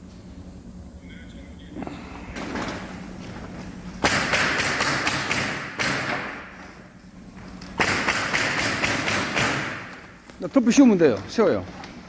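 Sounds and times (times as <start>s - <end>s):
rapid sharp knocking: 7.8s - 9.9s.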